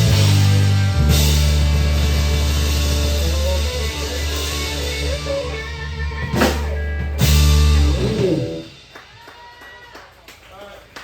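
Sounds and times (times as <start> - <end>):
rock band playing: 0.0 - 9.8
drum hits: 6.2 - 9.2.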